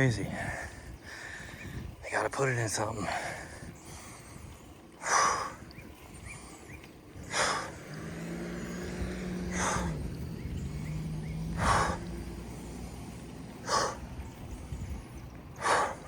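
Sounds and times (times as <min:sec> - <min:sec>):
hard forceful breathing: 0:00.3 - 0:02.0, 0:03.0 - 0:16.0
low engine-like hum: 0:03.3 - 0:16.0.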